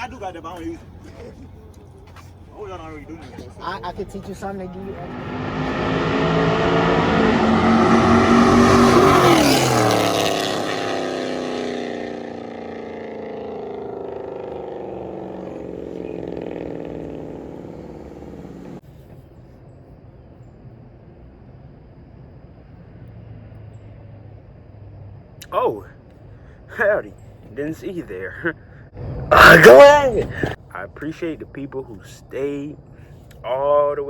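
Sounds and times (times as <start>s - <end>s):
car engine revving hard: 5.0s - 18.8s.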